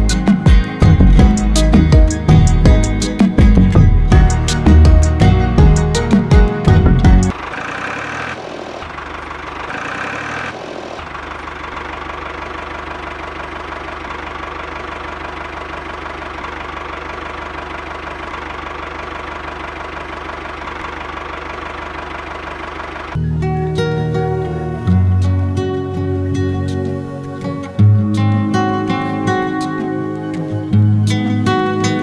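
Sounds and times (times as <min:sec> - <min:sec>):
tractor engine idling: 0:00.0 - 0:32.0.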